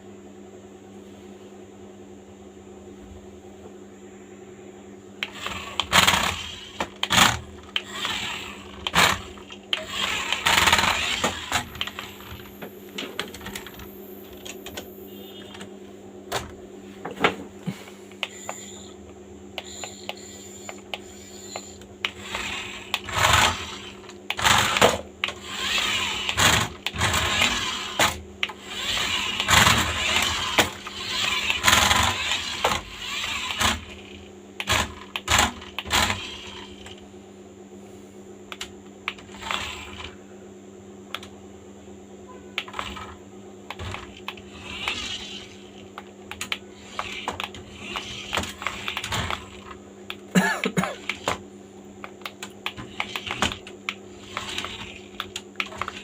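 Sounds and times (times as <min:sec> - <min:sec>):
steady low hum: 0:00.0 - 0:56.0
plastic toy car rattling: 0:05.4 - 0:12.4, 0:28.8 - 0:37.0.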